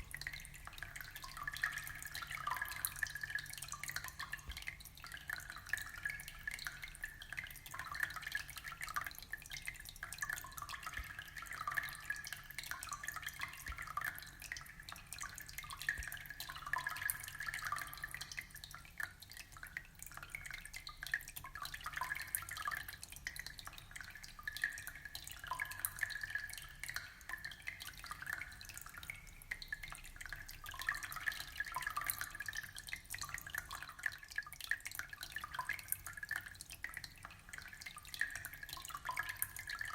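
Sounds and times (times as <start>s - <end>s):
water trickling and bubbling: 0.0s - 39.9s.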